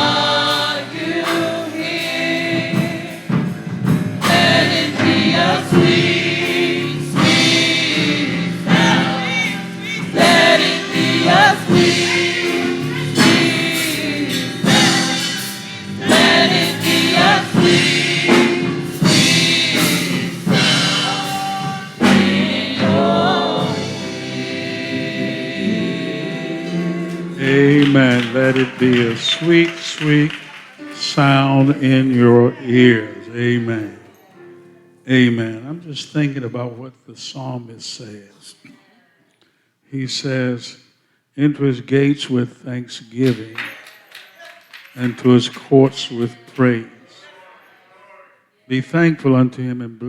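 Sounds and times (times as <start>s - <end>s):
musical accompaniment: 0.0s - 35.8s
choir singing gospel song: 0.0s - 36.6s, 43.1s - 48.0s.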